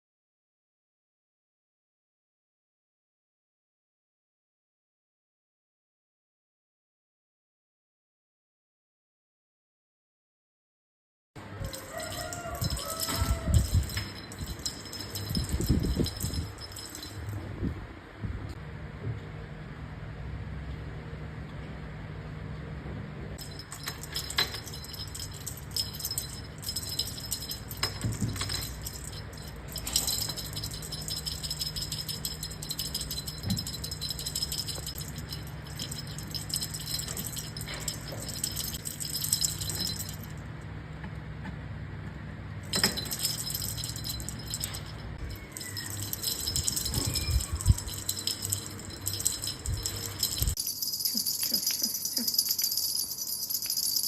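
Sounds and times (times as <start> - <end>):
metallic jingling and rattling: 11.6 - 17.5, 23.4 - 40.6, 42.6 - 54.0
steady low hum: 23.1 - 54.0.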